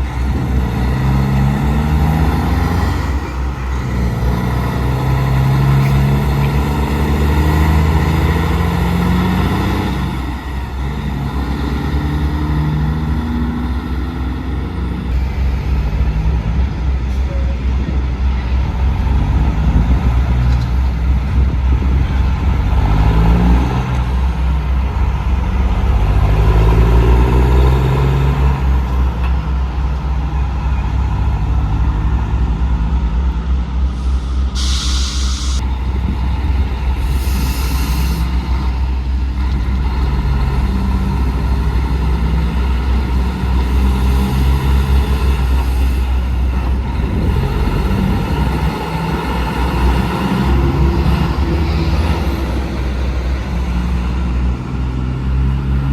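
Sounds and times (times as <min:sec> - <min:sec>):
diesel truck engines rumbling: 0:00.0 - 0:55.9
air brake hiss: 0:33.9 - 0:35.6, 0:37.0 - 0:38.5.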